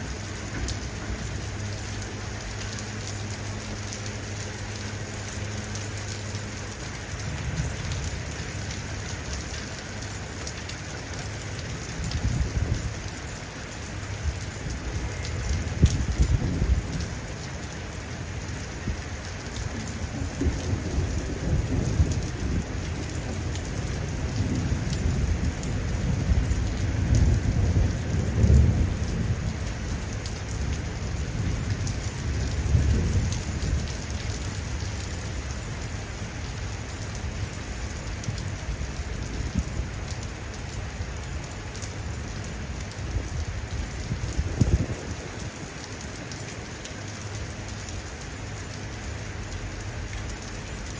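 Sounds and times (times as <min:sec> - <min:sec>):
heavy rain falling: 0:00.0 - 0:50.9
low rumble of thunder: 0:06.9 - 0:10.2, 0:10.8 - 0:46.1.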